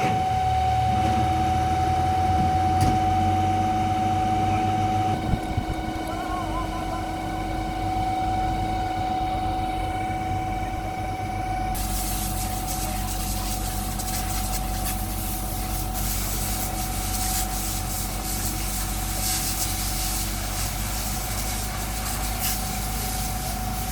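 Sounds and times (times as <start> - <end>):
fire engine humming: 0.0 - 23.9
water spraying from fire hose: 11.7 - 23.9.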